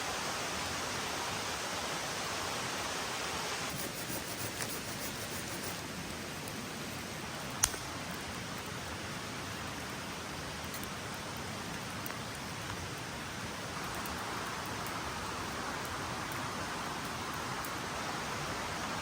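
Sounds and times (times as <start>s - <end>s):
steady rain in forest: 0.0s - 19.0s
sharp click: 7.6s - 7.9s.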